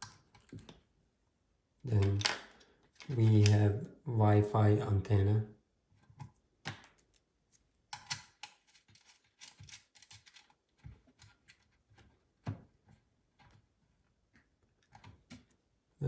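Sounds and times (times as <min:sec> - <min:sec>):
cable plugs clicking and rattling: 0:01.9 - 0:03.7, 0:07.9 - 0:12.1.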